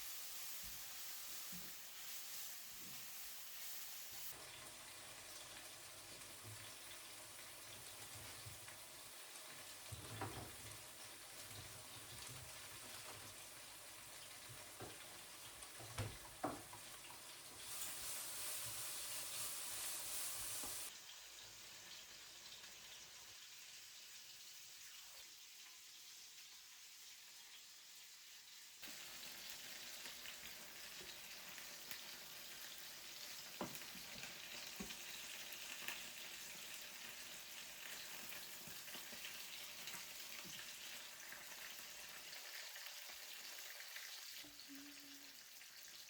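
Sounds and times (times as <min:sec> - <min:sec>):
loud hiss: 0:00.0 - 0:04.3, 0:17.6 - 0:20.9
food sizzling in a frying pan: 0:00.0 - 0:46.0.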